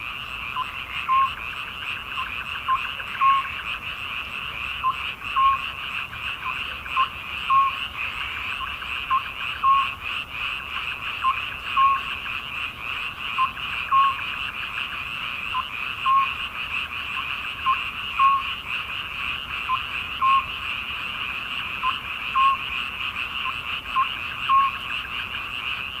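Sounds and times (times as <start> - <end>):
chorus of frogs calling: 0.0 - 26.0
frog two-note croak: 0.4 - 1.4, 2.1 - 3.6, 4.8 - 5.8, 6.4 - 7.8, 8.6 - 10.0, 11.2 - 12.1, 13.3 - 14.3, 15.5 - 16.4, 17.2 - 18.6, 19.6 - 20.6, 21.8 - 25.0.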